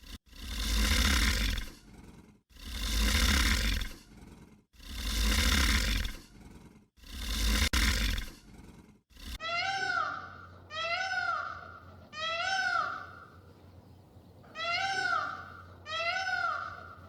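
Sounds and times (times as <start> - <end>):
deep animal roar: 0.0 - 13.3.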